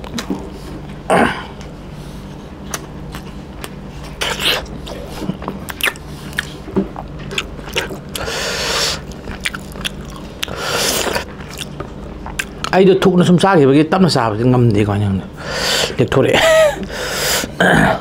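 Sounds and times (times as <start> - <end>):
steady low hum: 0.0 - 18.0
wet chewing mouth clicks: 2.7 - 8.3, 8.9 - 12.8.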